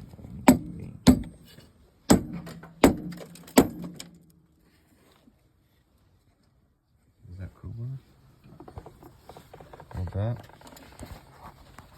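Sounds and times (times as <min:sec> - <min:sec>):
sledgehammer striking metal: 0:00.4 - 0:01.5, 0:02.1 - 0:04.2.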